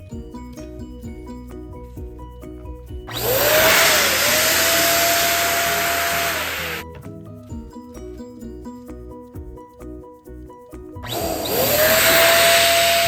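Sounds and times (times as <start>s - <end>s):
background music: 0.0s - 13.0s
electric balloon inflator blowing: 3.1s - 6.8s, 11.0s - 13.0s.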